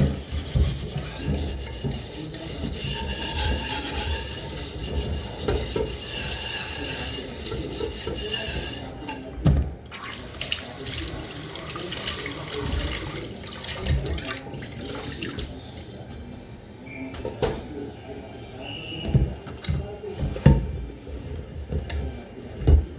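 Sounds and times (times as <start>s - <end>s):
dishes clinking and knocking: 0.0s - 9.8s, 19.0s - 20.8s.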